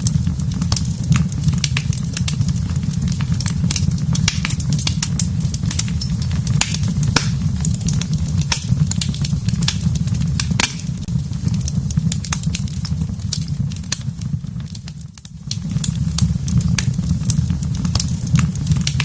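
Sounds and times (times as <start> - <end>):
fire crackling and popping: 0.0 - 19.0
sharp pop: 6.6 - 7.5, 10.5 - 10.9.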